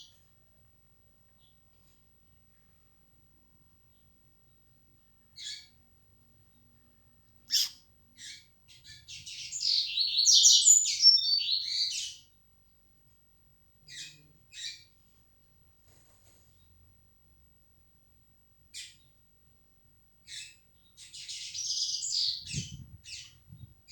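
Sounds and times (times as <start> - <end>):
bird chirping: 3.8 - 12.8, 13.8 - 15.0, 18.7 - 19.2, 20.2 - 23.9
bird warbling song: 5.3 - 5.8, 7.4 - 12.4, 13.8 - 15.0, 18.7 - 19.2, 20.2 - 23.9.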